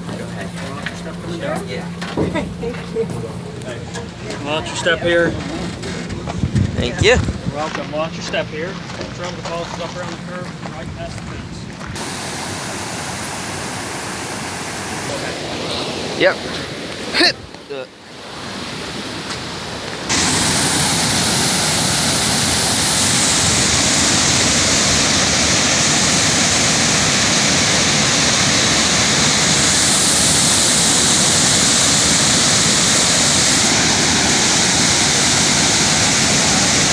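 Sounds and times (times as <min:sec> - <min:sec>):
waterfall rushing: 0:12.0 - 0:17.3, 0:20.0 - 0:36.9.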